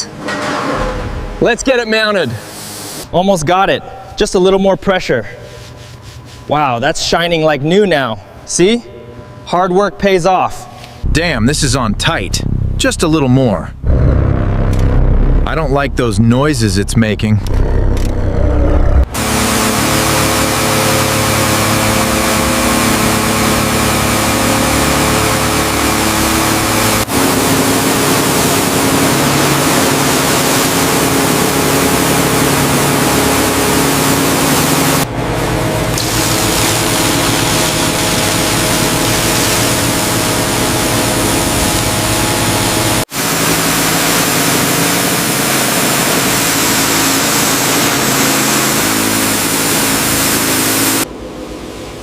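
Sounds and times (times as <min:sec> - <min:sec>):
engine-like machine drone: 0:10.8 - 0:52.0.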